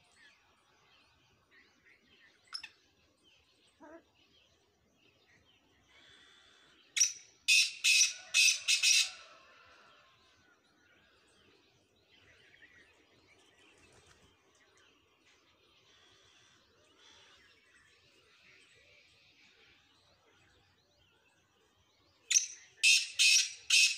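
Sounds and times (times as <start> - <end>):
faint bird chirps: 0.0 - 23.9.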